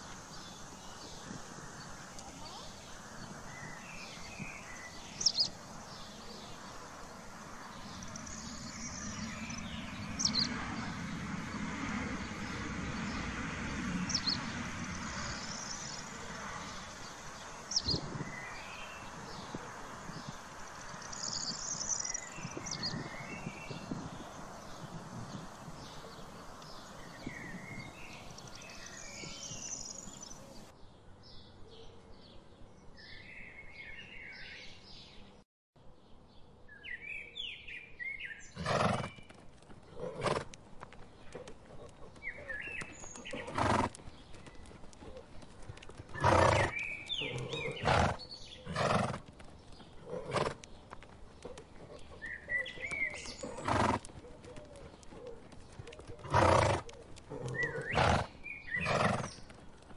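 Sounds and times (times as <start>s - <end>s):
songbirds chirping: 0.0s - 59.9s
horses snorting: 38.6s - 40.6s, 41.3s - 44.2s, 45.0s - 59.5s.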